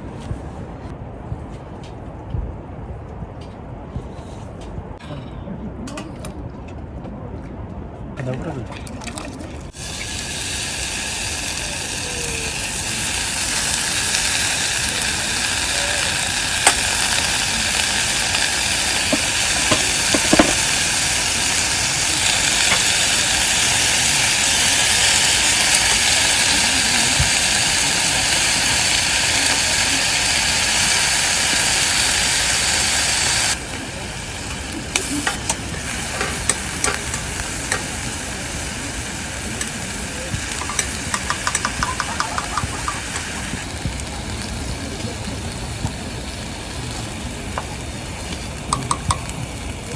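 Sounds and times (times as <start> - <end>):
food sizzling in a pan: 9.7 - 49.9
utensil clinking: 19.0 - 20.9, 40.6 - 43.0, 48.7 - 49.4.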